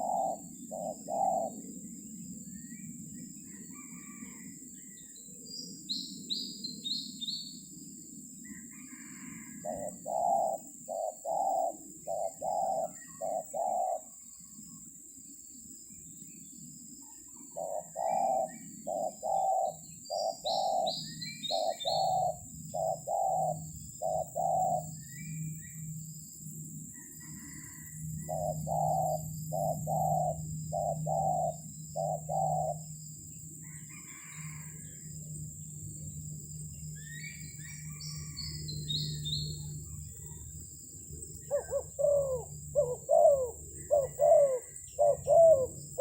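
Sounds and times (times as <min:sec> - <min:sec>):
dove cooing: 0:00.0 - 0:02.0, 0:08.6 - 0:14.2, 0:17.4 - 0:24.9, 0:27.0 - 0:33.0, 0:33.6 - 0:34.8, 0:41.4 - 0:46.0
small bird chirping: 0:15.9 - 0:40.6.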